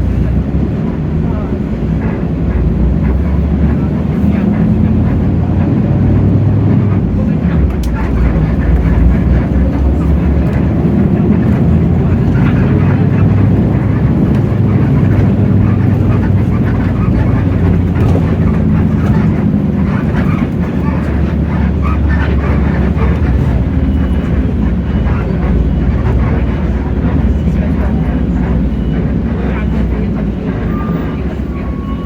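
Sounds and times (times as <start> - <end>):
bus body rattling: 0.0 - 32.0
bus diesel engine drone: 0.0 - 32.0.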